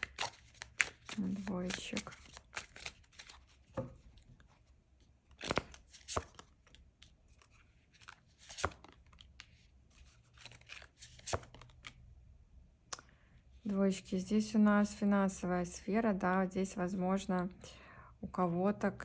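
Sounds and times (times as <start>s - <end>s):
cards snapping and rustling: 0.0s - 3.6s, 5.3s - 9.5s, 10.2s - 12.0s.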